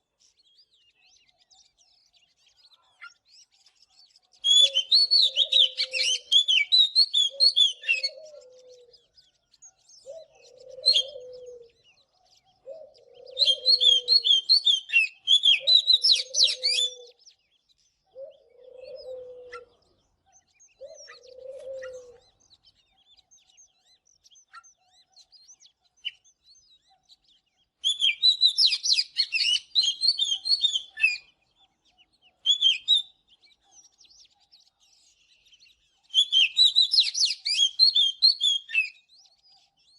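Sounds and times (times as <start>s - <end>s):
bird singing whistled phrases: 4.4s - 8.4s, 9.7s - 11.5s, 12.7s - 17.2s, 27.8s - 31.3s, 32.4s - 34.3s, 35.0s - 39.9s.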